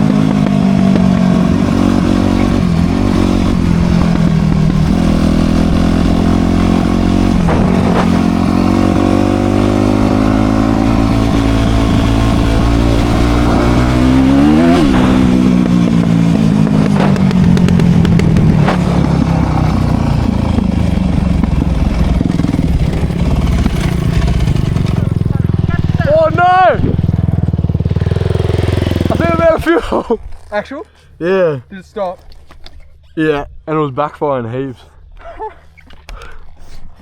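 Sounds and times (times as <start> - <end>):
dirt bike engine running: 0.0 - 30.6
sharp engine knocks: 7.4 - 8.3, 14.7 - 19.5.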